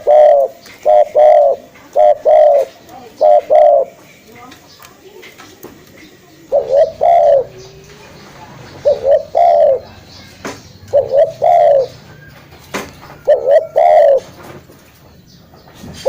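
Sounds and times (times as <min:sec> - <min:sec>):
dove cooing: 0:00.0 - 0:04.1, 0:06.4 - 0:14.6.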